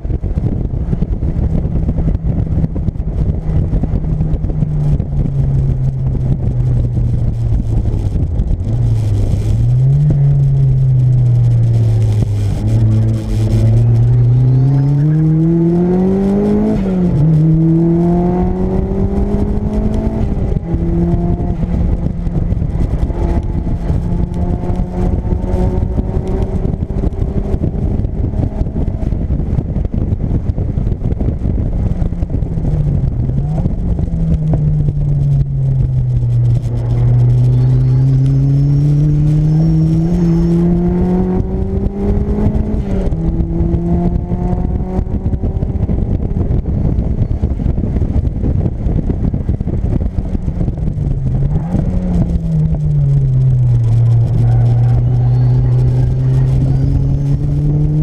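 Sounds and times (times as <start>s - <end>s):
car engine revving under load: 0.0s - 58.0s
road and wind noise: 0.0s - 58.0s.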